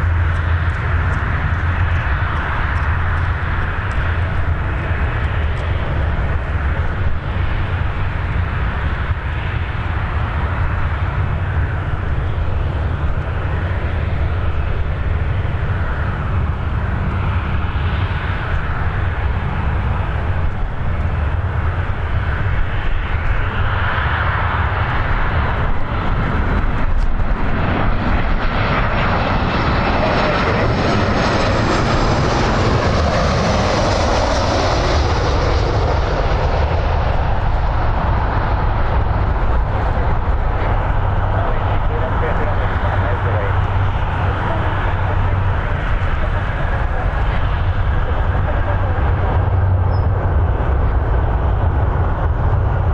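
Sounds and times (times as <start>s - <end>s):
jet airliner engines rumbling: 0.0s - 52.9s.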